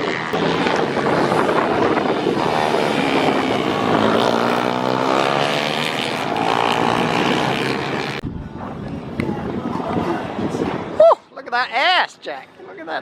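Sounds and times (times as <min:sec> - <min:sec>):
engine running: 0:00.0 - 0:08.9.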